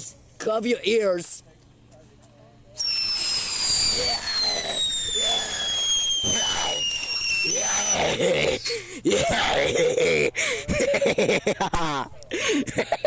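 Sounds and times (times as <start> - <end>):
whistling firework: 2.8 - 8.8
firework hissing and crackling: 2.8 - 8.9.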